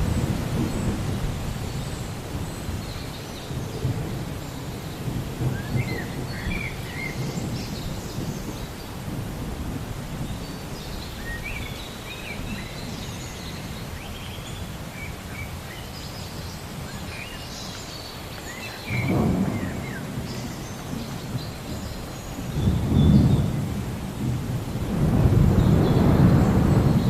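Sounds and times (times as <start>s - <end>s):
thunder rumbling: 0.0s - 10.4s, 18.9s - 27.0s
rain: 0.0s - 27.0s.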